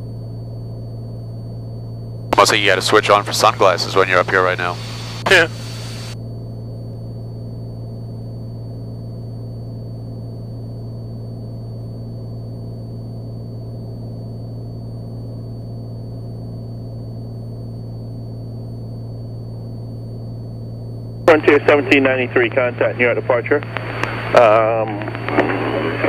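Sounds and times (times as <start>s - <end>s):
propeller plane engine droning: 2.3s - 7.3s, 20.4s - 26.0s.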